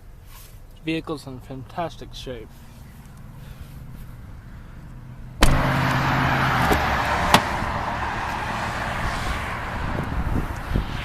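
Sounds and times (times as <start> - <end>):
car door clunk: 5.4 - 6.0, 6.6 - 7.6
steady rush of noise: 6.6 - 11.0.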